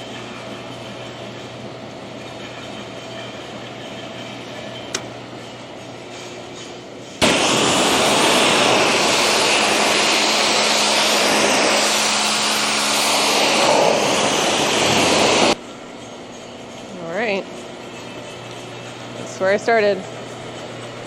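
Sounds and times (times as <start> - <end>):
pressure washer spraying: 7.2 - 15.6.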